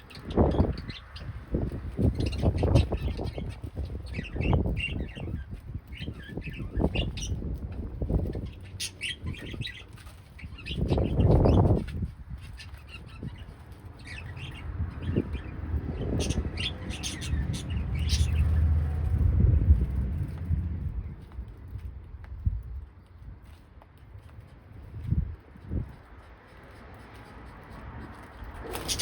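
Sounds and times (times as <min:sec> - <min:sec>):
cage birds chirping: 0:00.0 - 0:23.6, 0:24.2 - 0:29.0
wing flapping: 0:28.2 - 0:29.0.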